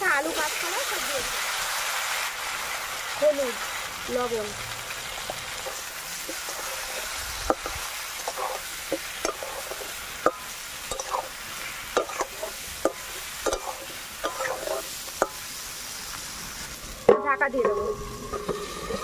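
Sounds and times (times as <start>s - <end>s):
food sizzling in hot oil: 0.0s - 19.0s
spatula scraping and knocking pan: 5.6s - 11.3s, 11.9s - 15.4s, 17.0s - 19.0s.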